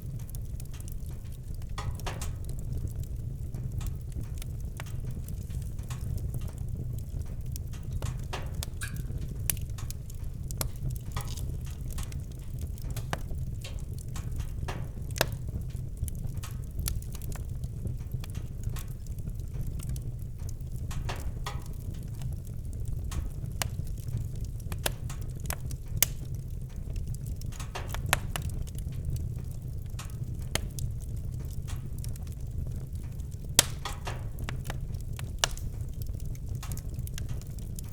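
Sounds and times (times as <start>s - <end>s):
campfire crackling and popping: 0.0s - 37.9s.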